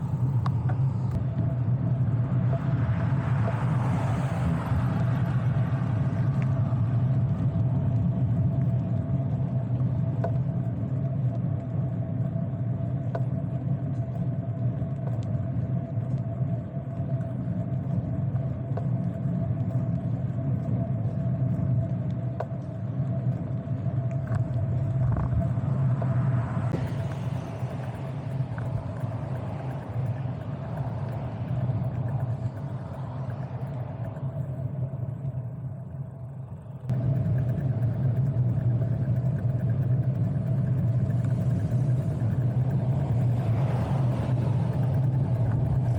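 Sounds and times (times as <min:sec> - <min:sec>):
constant higher hum: 0:00.0 - 0:45.9
road and wind rumble: 0:00.0 - 0:45.9
faint ticks: 0:00.1 - 0:01.5, 0:06.3 - 0:45.9.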